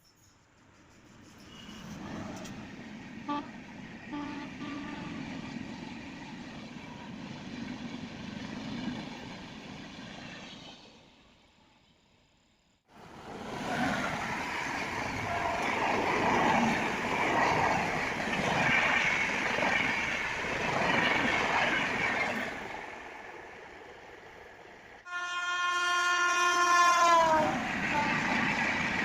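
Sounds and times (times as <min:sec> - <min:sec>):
train wheel and rail noise: 0:00.0 - 0:29.0
train horn blast: 0:03.3 - 0:05.3, 0:25.1 - 0:28.5.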